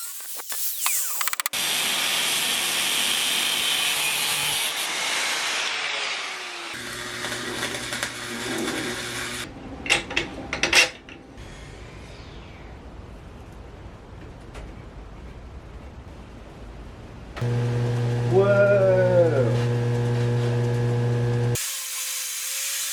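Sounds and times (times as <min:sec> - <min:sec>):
power tool grinding: 0:00.0 - 0:09.5, 0:17.4 - 0:22.9.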